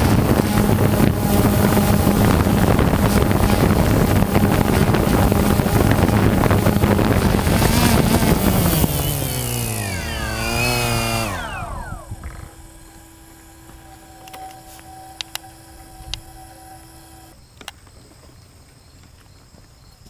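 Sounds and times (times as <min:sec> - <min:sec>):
drone motors whining down: 0:00.0 - 0:17.4
faint steady hum: 0:00.0 - 0:17.7
small clicks: 0:13.6 - 0:17.9.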